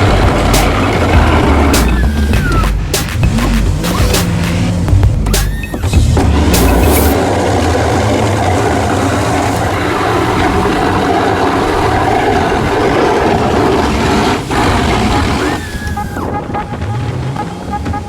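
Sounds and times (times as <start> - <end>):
plow truck rumbling: 0.0 - 18.0.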